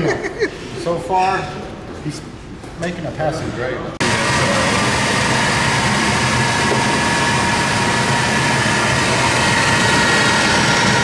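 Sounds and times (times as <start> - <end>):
fan motor blowing air: 4.0 - 11.0.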